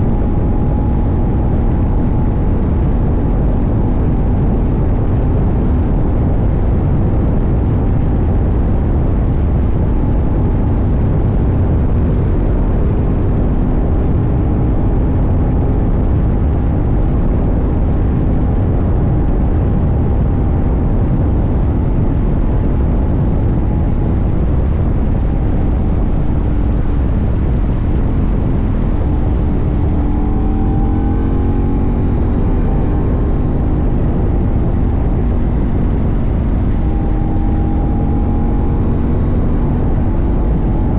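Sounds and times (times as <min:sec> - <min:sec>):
wind and road noise rumble: 0:00.0 - 0:40.9
motorcycle engine running: 0:16.6 - 0:40.9.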